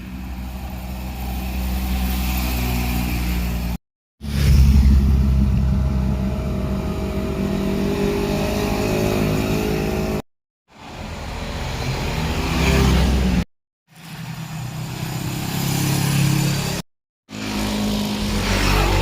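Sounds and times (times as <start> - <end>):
motorcycle engines passing: 0.0 - 3.8, 4.4 - 10.2, 14.0 - 19.0.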